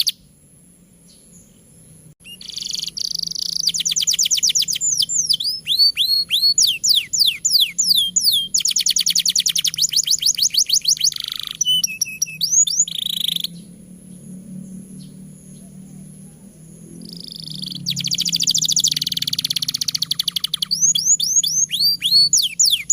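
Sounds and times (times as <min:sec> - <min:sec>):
canary singing: 0:00.0 - 0:00.2, 0:01.1 - 0:22.9.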